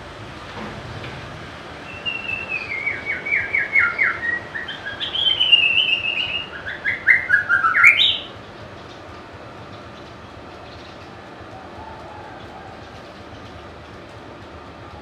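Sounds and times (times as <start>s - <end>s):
bird singing whistled notes: 1.8s - 8.3s.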